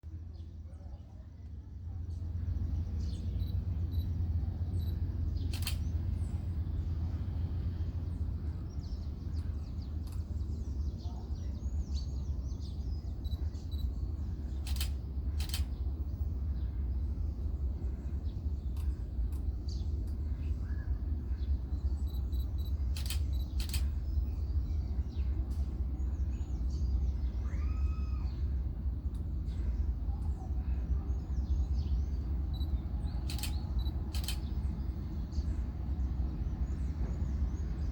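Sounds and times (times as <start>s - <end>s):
steady low rumble: 0.0s - 37.9s
birds calling and chirping: 2.0s - 37.9s
sharp clicks: 4.8s - 5.9s, 14.5s - 15.8s, 22.1s - 23.9s, 32.5s - 34.6s.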